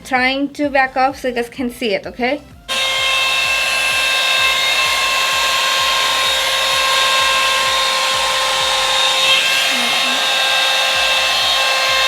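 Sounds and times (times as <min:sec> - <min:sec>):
hair dryer air rush: 0:02.7 - 0:12.0
motor whine: 0:02.7 - 0:12.0.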